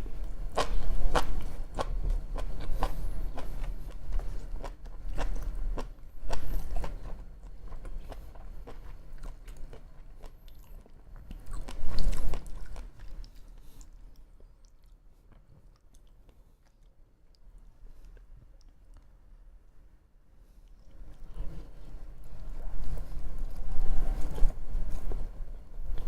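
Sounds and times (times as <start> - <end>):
close chewing with mouth clicks: 0.0 - 19.3.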